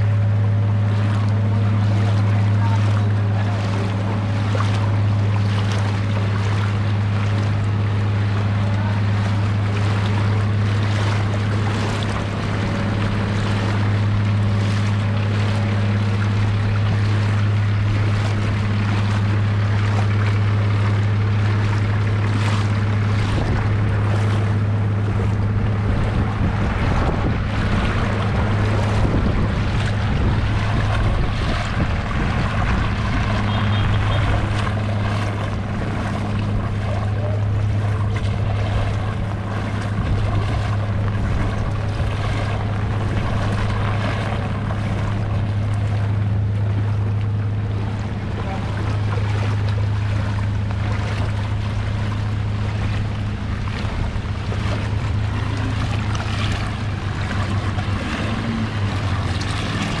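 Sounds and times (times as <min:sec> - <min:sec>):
low hum: 0:00.0 - 1:00.0
water washing around legs: 0:00.0 - 1:00.0
rain falling on water: 0:27.4 - 1:00.0.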